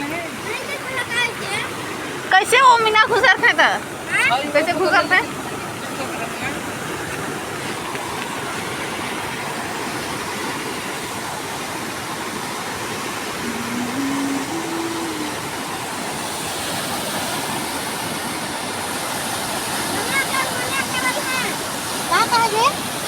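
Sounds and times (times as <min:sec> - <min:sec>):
river rushing: 0:00.0 - 0:23.0
low tone rising in pitch: 0:13.4 - 0:15.8.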